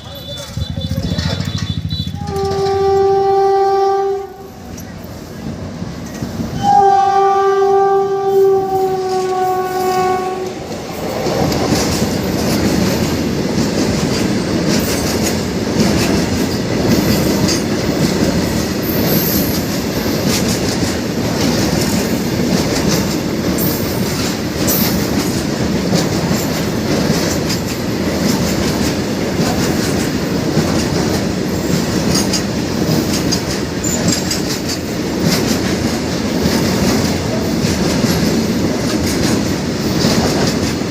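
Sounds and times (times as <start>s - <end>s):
locomotive horn: 0.0s - 4.8s, 6.6s - 10.7s
freight train rumbling on rails: 0.0s - 40.9s.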